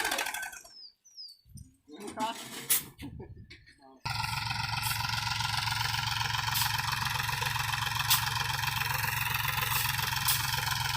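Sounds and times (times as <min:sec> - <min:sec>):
tractor diesel engine running: 0:00.0 - 0:00.7, 0:04.1 - 0:10.9.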